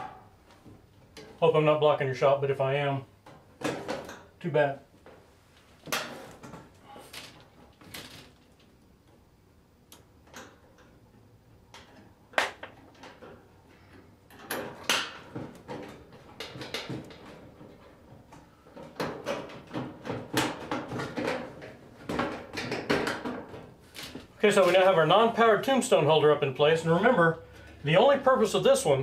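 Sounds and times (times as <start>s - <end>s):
clicks and knocks on sheet metal: 14.3s - 24.2s.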